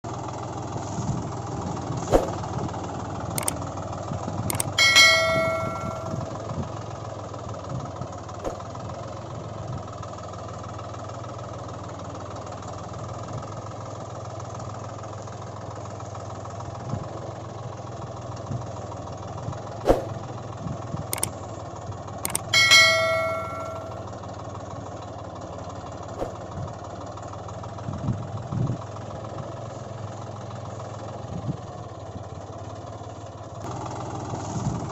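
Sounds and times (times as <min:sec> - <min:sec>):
low engine-like hum: 0:00.0 - 0:34.9
sharp clicks: 0:03.4 - 0:03.6, 0:04.5 - 0:06.2, 0:21.2 - 0:21.4, 0:22.3 - 0:23.9
bell-like chime: 0:04.5 - 0:06.3, 0:22.3 - 0:24.0.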